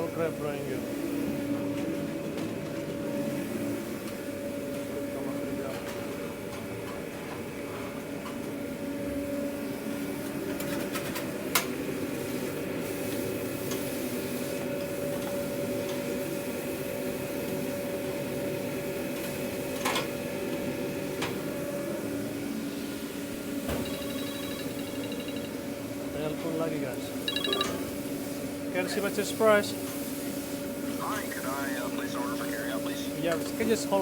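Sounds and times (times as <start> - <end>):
kitchen equipment hum: 23.3 - 25.8.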